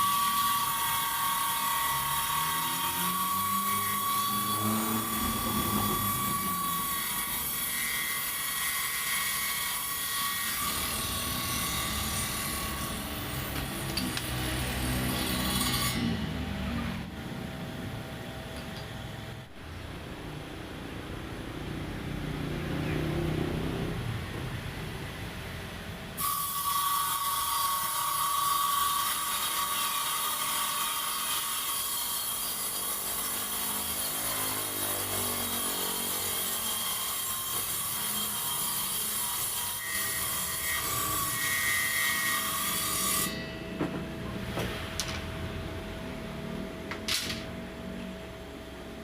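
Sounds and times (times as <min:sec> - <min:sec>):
table saw motor running: 0:00.0 - 0:08.3
saw blade cutting wood: 0:00.0 - 0:17.1, 0:26.2 - 0:44.9.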